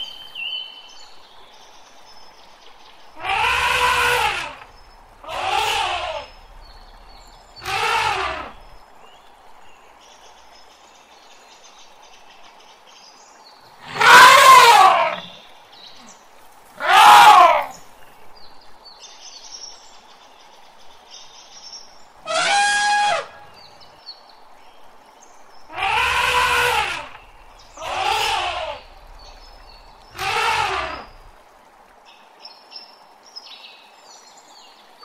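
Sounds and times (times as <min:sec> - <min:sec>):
elephant trumpeting: 0:03.2 - 0:08.8, 0:13.8 - 0:15.4, 0:16.8 - 0:17.8, 0:22.3 - 0:23.6, 0:25.7 - 0:31.3.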